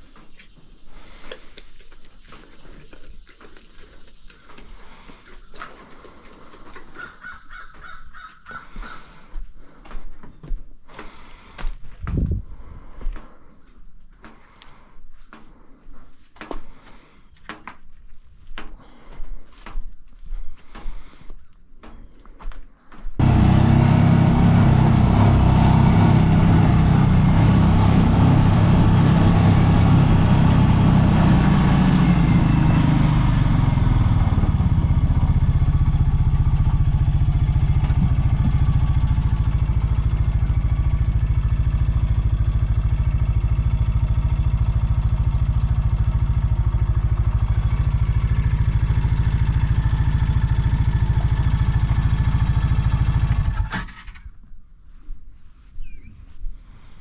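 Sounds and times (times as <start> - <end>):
insect chirring: 0.0 - 23.2
engine running: 23.2 - 54.2.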